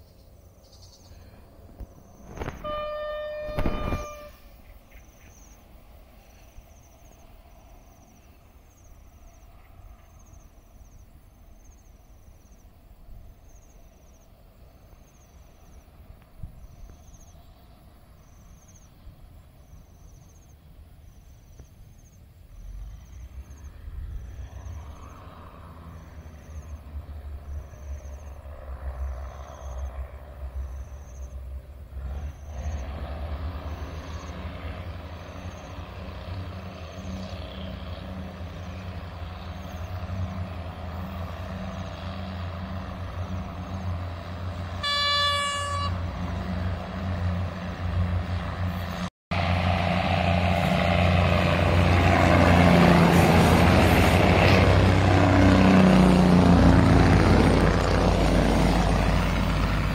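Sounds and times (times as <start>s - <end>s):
insect chirping: 0.0s - 33.0s, 33.6s - 45.2s
train engine rumble: 0.0s - 59.9s.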